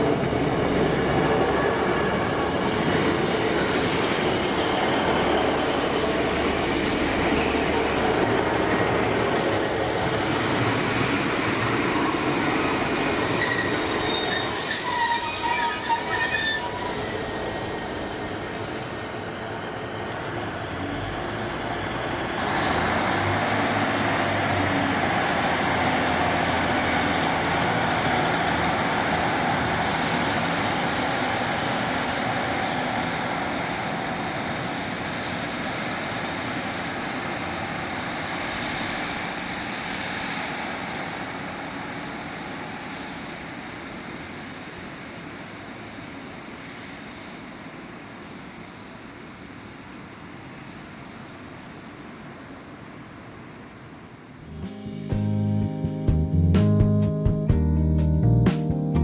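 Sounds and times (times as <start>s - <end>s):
diesel train rumble: 0.0s - 48.0s, 54.4s - 59.0s
wheel squeals: 11.0s - 18.2s
burst of hiss: 14.5s - 20.2s.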